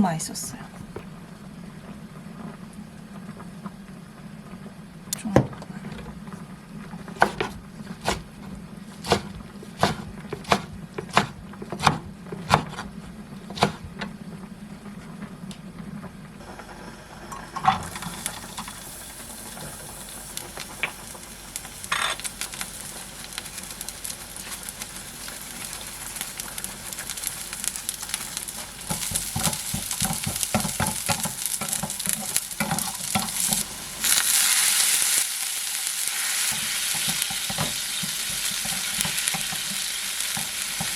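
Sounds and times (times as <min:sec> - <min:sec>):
knife chopping on cutting board: 0:07.1 - 0:14.0
food sizzling in a frying pan: 0:16.4 - 0:40.9.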